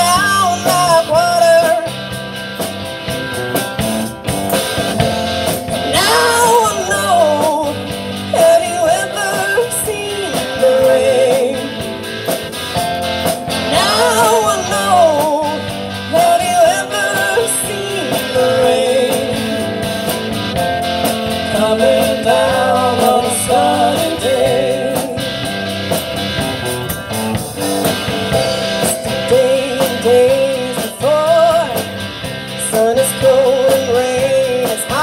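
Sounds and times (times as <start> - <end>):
wavering lead vocal or guitar: 0.0 - 3.5, 5.0 - 26.8, 27.6 - 35.0
live rock band playing: 0.0 - 35.0
steady drum beat: 0.0 - 35.0.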